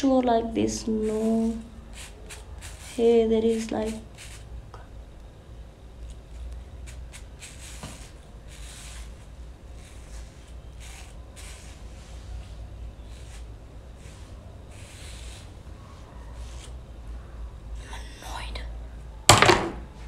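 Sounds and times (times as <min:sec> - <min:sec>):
steady low hum: 0:00.0 - 0:20.0
brushing strokes over hair: 0:00.8 - 0:04.5, 0:06.8 - 0:16.8.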